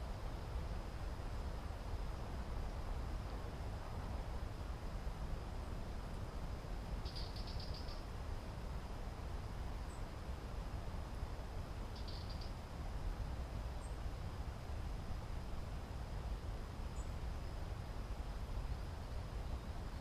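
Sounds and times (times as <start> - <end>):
faint high chirps: 7.0 - 8.0, 11.9 - 12.6.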